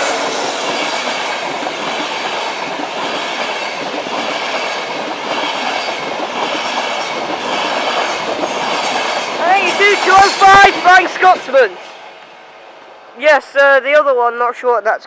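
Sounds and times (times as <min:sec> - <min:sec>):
wheels rushing on rail: 0:00.0 - 0:13.3
electric train passing: 0:00.0 - 0:14.8.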